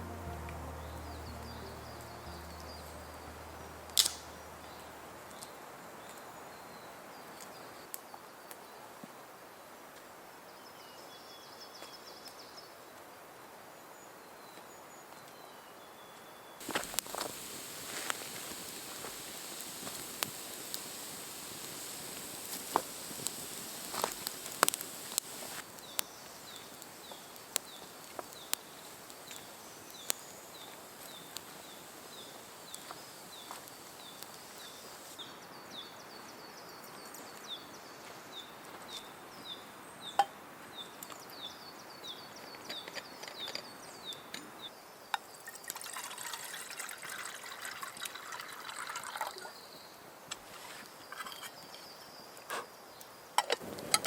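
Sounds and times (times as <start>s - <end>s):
bird calling high falling note: 0.0s - 5.6s
hissing rustling noise: 0.0s - 6.2s, 16.6s - 35.2s, 53.6s - 54.0s.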